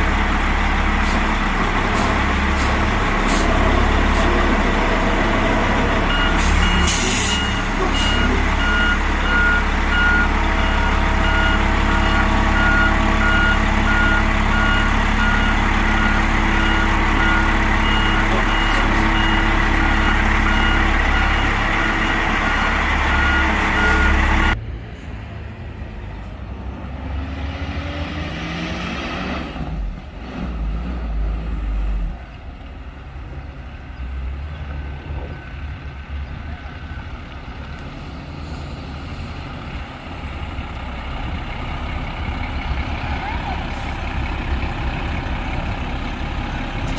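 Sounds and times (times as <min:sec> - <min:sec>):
diesel truck engine running: 0:00.0 - 0:24.8, 0:29.7 - 0:46.9
backup alarm beeping: 0:06.0 - 0:22.3, 0:23.0 - 0:24.3.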